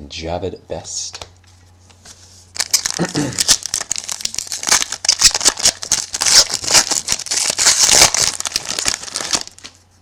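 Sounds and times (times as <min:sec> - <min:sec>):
wrapper crinkling and tearing: 0:02.6 - 0:09.8.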